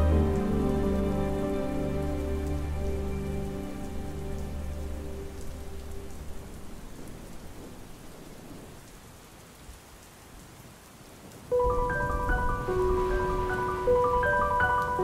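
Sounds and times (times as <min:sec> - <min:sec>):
rain pattering: 0:00.0 - 0:15.0
held music chords: 0:11.5 - 0:15.0.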